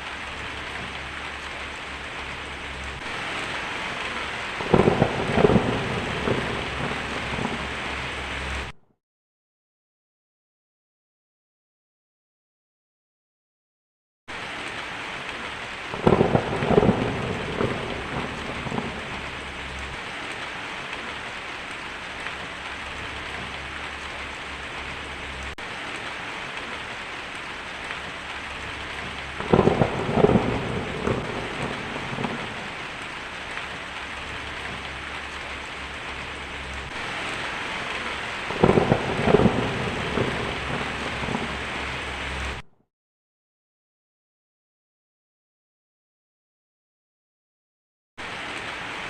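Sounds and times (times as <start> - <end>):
thunder rumbling: 0.0 - 8.7, 15.4 - 42.6
heavy rain on a tin roof: 0.0 - 8.8, 14.3 - 42.7, 48.2 - 49.0.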